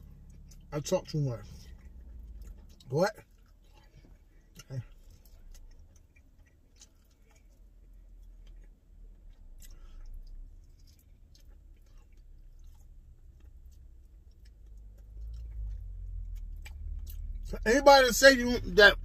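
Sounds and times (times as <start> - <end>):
chewing with wet smacks: 0.0 - 19.0
steady low rumble: 6.8 - 19.0.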